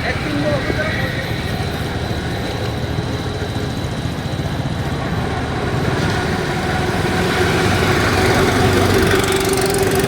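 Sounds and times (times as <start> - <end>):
motorcycle engine rumbling: 0.0 - 10.0.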